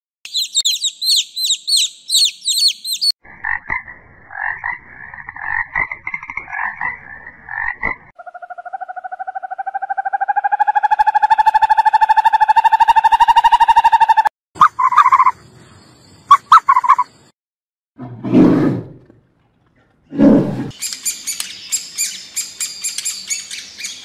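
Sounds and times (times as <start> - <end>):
small bird twittering: 0.3 - 3.2
frogs croaking: 3.3 - 17.3.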